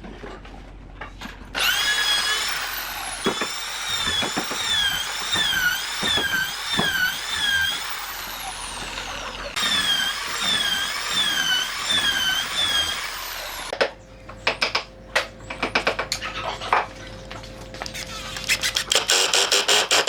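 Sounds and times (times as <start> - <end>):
power tool whining: 1.6 - 13.8, 17.8 - 20.0.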